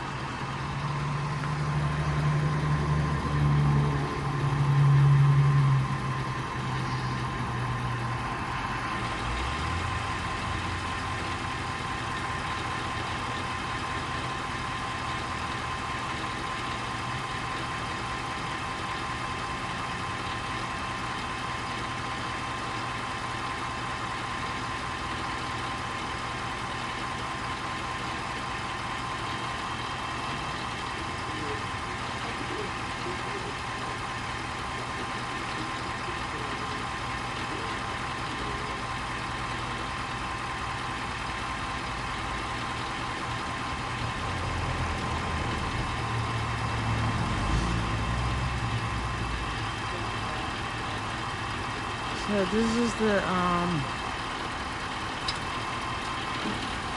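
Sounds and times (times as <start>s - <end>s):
thin steady whine: 0.0s - 14.0s
vehicle engine idling: 0.0s - 56.9s.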